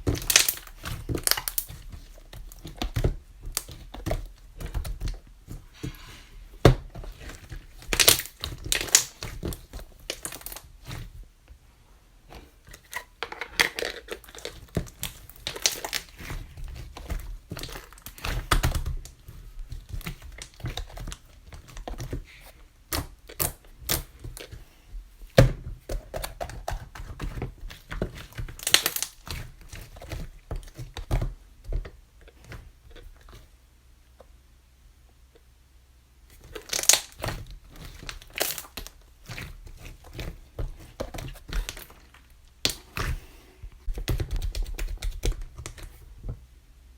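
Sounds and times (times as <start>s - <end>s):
slime squished by hand: 0.0s - 11.2s, 13.8s - 24.6s, 36.4s - 46.0s.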